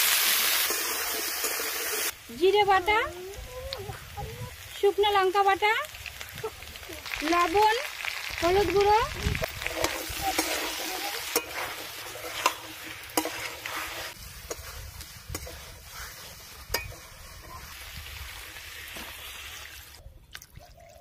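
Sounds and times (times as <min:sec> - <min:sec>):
frying sizzle: 0:00.0 - 0:20.0
spatula stirring and scraping: 0:09.4 - 0:19.3
spatula clacking against pan: 0:16.7 - 0:17.1.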